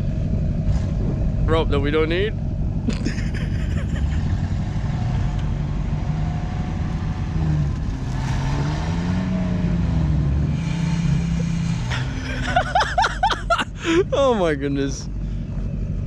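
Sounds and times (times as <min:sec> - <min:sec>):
truck engine running hard: 0:00.0 - 0:16.0.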